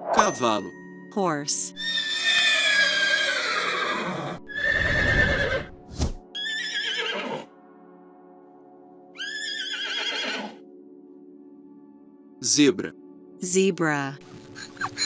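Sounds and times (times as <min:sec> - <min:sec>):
soft background music: 0:00.0 - 0:15.0
horse whinnying: 0:01.8 - 0:07.5, 0:09.2 - 0:10.6.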